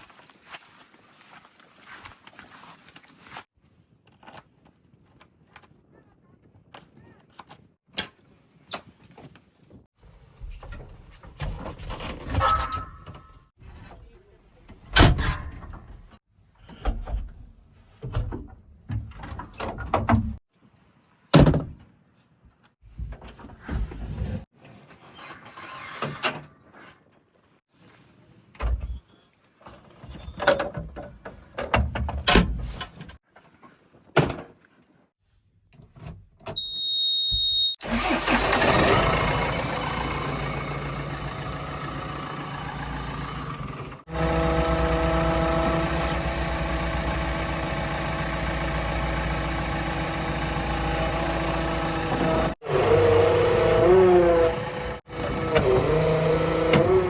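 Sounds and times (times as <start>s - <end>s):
short high beep: 36.6s - 37.8s
vehicle engine running: 37.9s - 55.6s.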